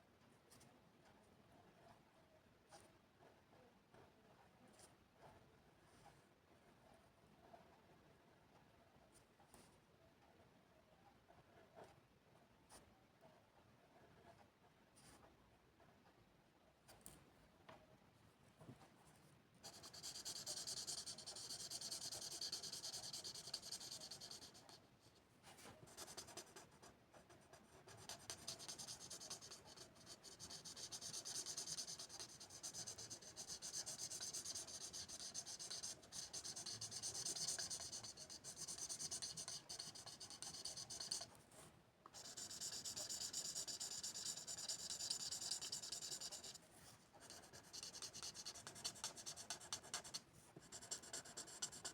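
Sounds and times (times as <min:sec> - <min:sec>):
pencil strokes on paper: 0:19.6 - 0:41.6, 0:42.2 - 0:51.9.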